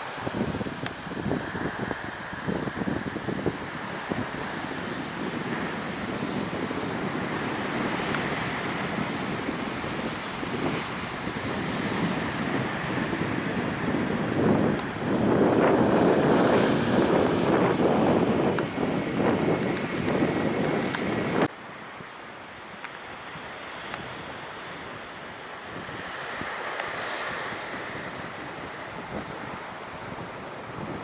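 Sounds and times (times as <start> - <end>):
surf rushing: 0.0 - 21.5
wind buffeting microphone: 0.0 - 21.5, 23.2 - 31.0.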